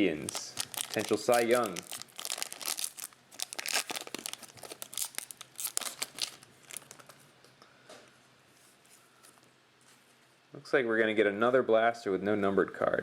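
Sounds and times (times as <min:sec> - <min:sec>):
cards rustling: 0:00.2 - 0:07.2
foil wrapper crinkling and tearing: 0:00.2 - 0:07.2.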